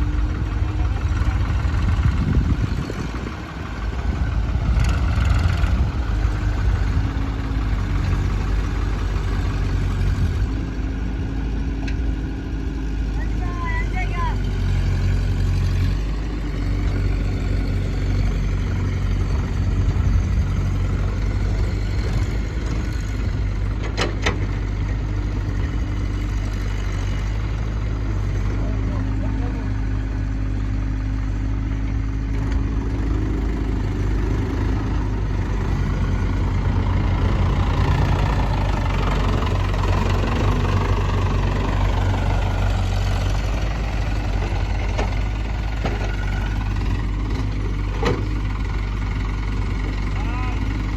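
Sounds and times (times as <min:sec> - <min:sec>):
diesel engines running at low revs: 0:00.0 - 0:50.9.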